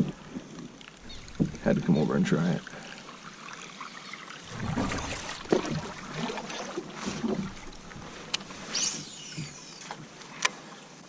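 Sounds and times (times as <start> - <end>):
water splashing around kayak: 0.0 - 11.0.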